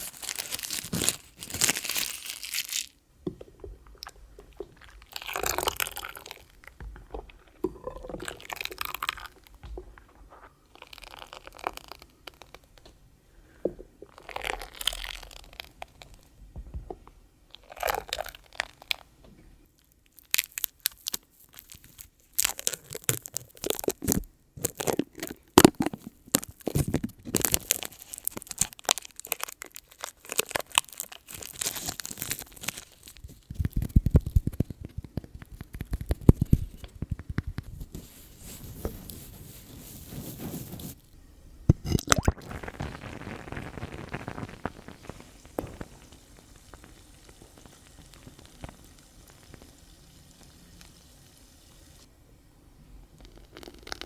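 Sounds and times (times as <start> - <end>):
hands rubbing lathered soap: 33.4 - 41.0.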